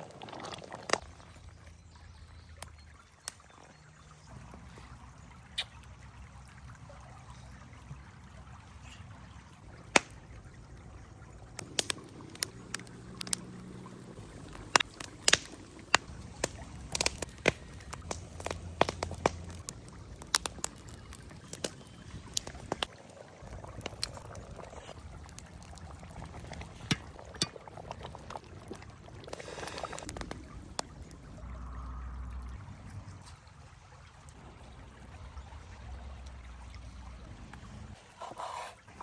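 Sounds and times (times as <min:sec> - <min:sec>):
liquid pouring: 0:00.0 - 0:01.4, 0:09.6 - 0:37.4.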